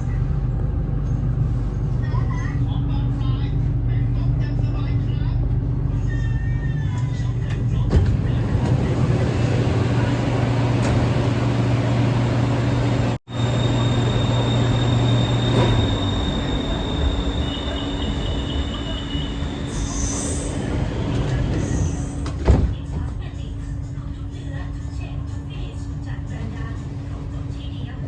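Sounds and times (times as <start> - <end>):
train car rumble: 0.0 - 28.0.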